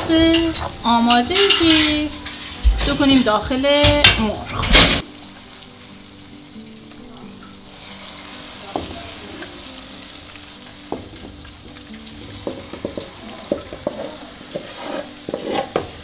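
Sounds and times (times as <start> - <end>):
onions sizzling in hot oil: 0.0 - 4.4, 5.0 - 16.0
spatula scraping a metal pan: 12.4 - 16.0.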